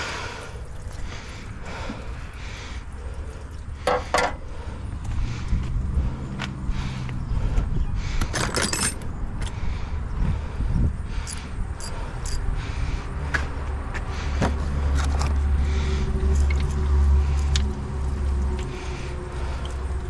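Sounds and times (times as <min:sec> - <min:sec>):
steady low rumble: 0:00.0 - 0:20.0
metal clinking and jingling: 0:08.4 - 0:09.1, 0:11.2 - 0:12.5.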